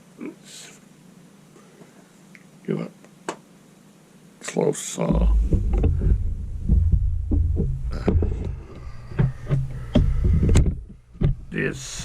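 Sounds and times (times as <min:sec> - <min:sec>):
camera handling thumps and knocks: 0:05.4 - 0:06.2, 0:07.5 - 0:11.4.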